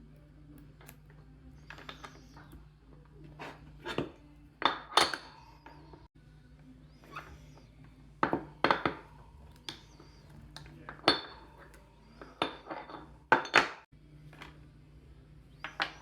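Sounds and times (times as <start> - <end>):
small tools clicking and clinking: 0.7 - 2.7.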